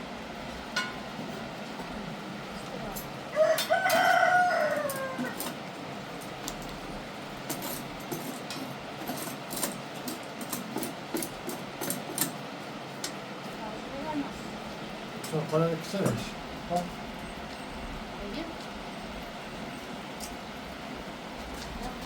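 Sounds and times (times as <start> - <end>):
rooster crowing: 3.3 - 5.7.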